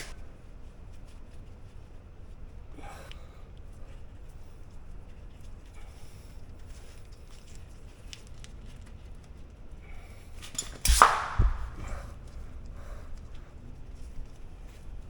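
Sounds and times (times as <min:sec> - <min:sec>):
light clicks and rustles: 0:00.0 - 0:15.0
sharp metal clack: 0:10.6 - 0:11.7
dull thump: 0:10.8 - 0:12.1.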